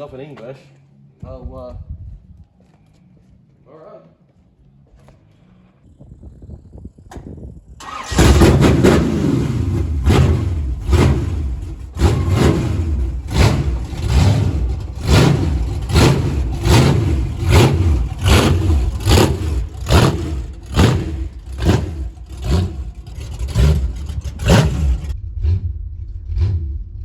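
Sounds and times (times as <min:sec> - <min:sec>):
vehicle engine pulsing surge: 0:07.8 - 0:27.0.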